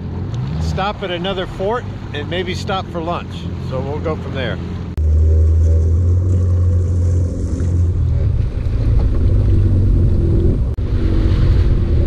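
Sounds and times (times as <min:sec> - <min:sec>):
water splashing at hull: 0:00.0 - 0:12.0
watercraft engine drone: 0:00.0 - 0:12.0
wind on microphone: 0:05.0 - 0:12.0.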